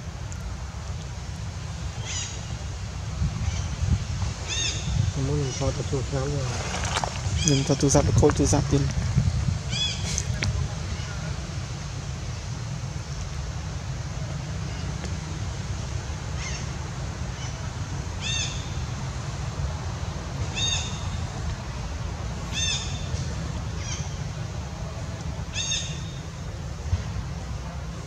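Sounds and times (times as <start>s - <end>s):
steady low rumble: 0.0s - 28.0s
bird calling: 2.0s - 2.6s, 4.4s - 8.0s, 20.5s - 21.4s, 22.5s - 24.3s, 25.4s - 26.4s.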